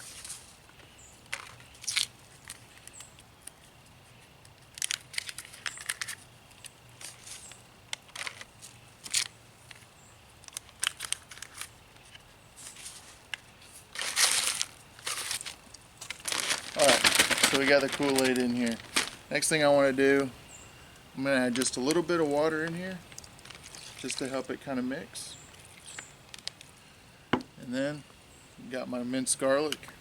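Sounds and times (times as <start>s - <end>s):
packets being torn open: 4.5s - 12.2s, 14.0s - 19.2s, 23.1s - 24.3s
plastic bag crinkling: 7.0s - 13.3s, 13.9s - 20.2s, 21.5s - 26.8s.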